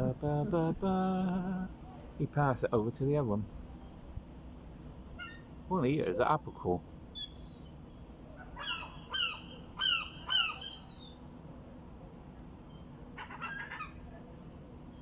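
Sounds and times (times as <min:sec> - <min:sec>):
gulls calling: 0:00.0 - 0:01.4, 0:08.4 - 0:11.2.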